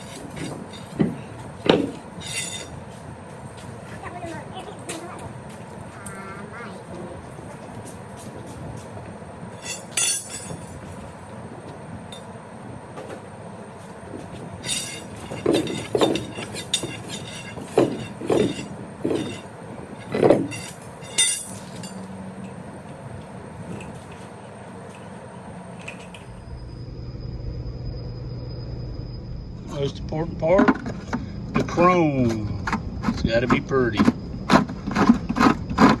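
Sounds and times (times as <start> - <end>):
metal tools clanking: 0.0 - 2.8, 9.6 - 10.9, 14.6 - 22.6, 29.7 - 36.0.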